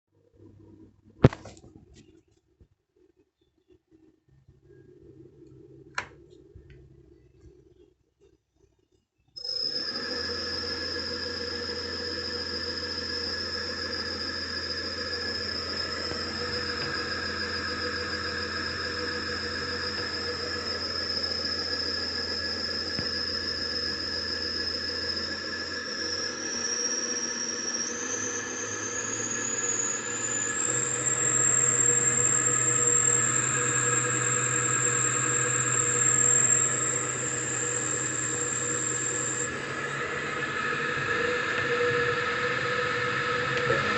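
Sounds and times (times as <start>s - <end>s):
electric motor whine: 9.4s - 43.9s
low motor hum: 9.4s - 43.9s.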